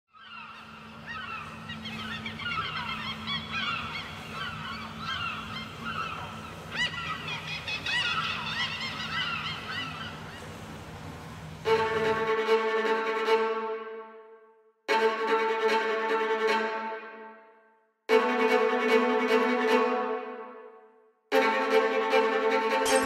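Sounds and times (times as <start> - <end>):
flock of birds calling: 0.1 - 10.6
steady low hum: 0.3 - 13.0.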